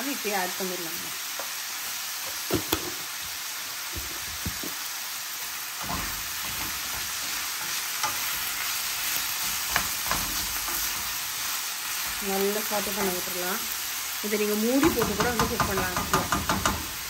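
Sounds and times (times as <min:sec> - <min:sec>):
food sizzling in oil: 0:00.0 - 0:17.0
metal spoon knocking on pan: 0:14.8 - 0:16.9.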